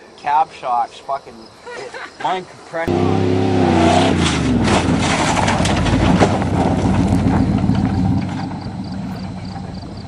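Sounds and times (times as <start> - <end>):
truck engine running: 2.9 - 10.0
rapid clatter and rattling: 4.7 - 9.7.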